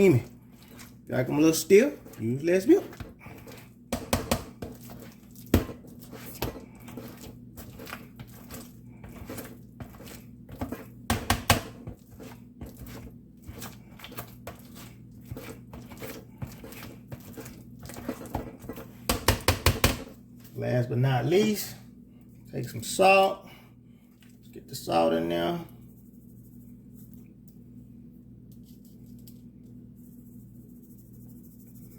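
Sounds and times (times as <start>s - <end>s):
utensil scraping pot: 0.0s - 20.2s
utensil knocking against pot: 3.9s - 4.7s, 11.1s - 11.8s, 19.1s - 20.1s.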